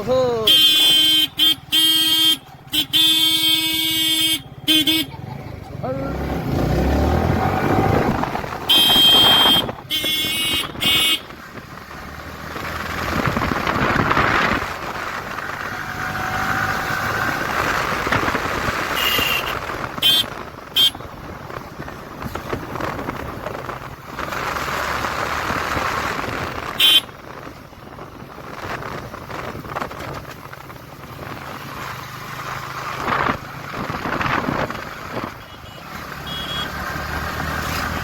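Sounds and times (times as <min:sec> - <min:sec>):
motorcycle engine: 0:00.0 - 0:38.0
traffic noise: 0:00.0 - 0:38.0
wind: 0:00.0 - 0:38.0
vehicle horns honking: 0:00.4 - 0:05.3, 0:08.5 - 0:11.4, 0:18.8 - 0:21.1, 0:26.6 - 0:27.2, 0:35.2 - 0:37.0.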